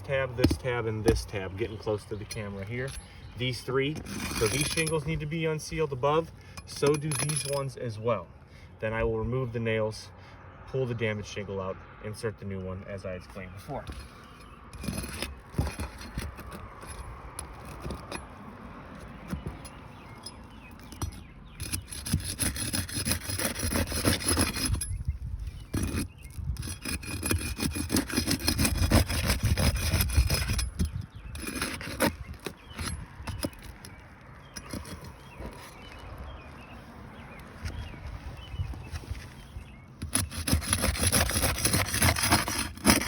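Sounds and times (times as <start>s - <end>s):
roof shingles scraping and tearing: 13.9s - 24.8s, 38.9s - 43.0s.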